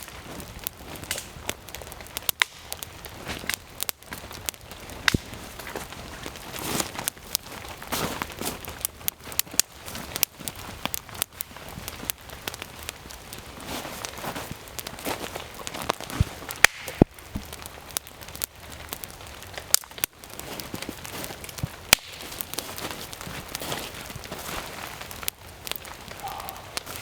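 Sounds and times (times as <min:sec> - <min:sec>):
rain pattering: 0:00.0 - 0:27.0
wet wood campfire crackling: 0:00.0 - 0:27.0.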